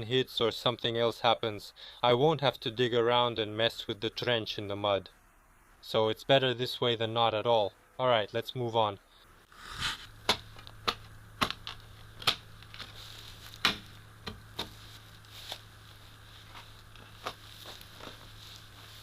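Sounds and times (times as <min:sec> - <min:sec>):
faint low hum: 0:00.0 - 0:19.0
shovel striking stones: 0:09.7 - 0:12.9, 0:13.6 - 0:14.8.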